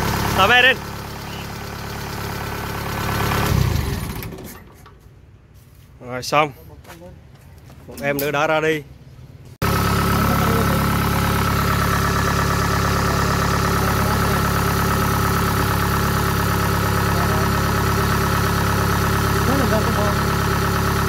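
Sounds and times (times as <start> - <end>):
farm machine engine idling: 0.0 - 5.0, 9.6 - 21.0.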